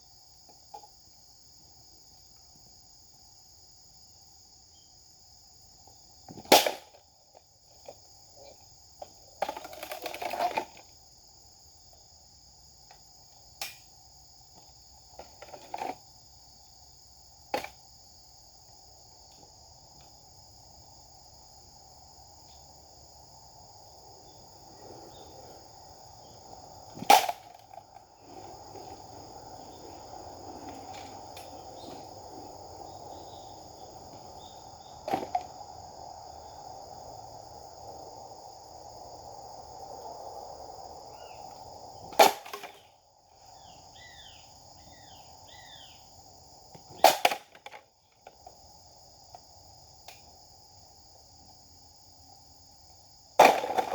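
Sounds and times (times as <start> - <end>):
sword cutting cracks: 27.0 - 27.6.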